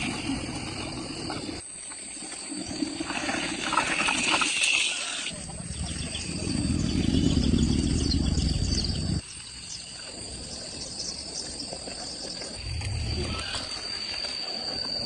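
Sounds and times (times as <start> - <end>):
insects chirring: 0.0 - 15.0
loud low rumbling noise: 5.4 - 9.2.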